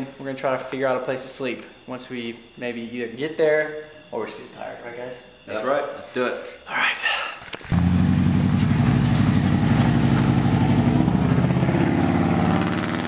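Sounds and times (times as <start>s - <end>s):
car engine running: 7.7s - 13.0s.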